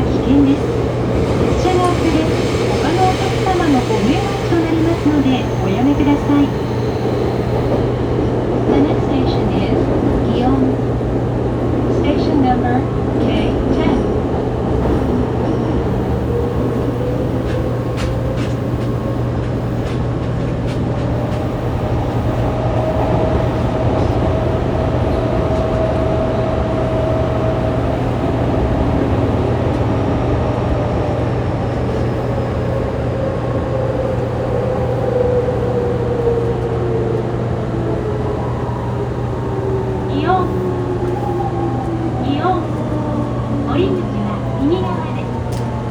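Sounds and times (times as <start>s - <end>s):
train wheels rumbling: 0.0s - 45.9s.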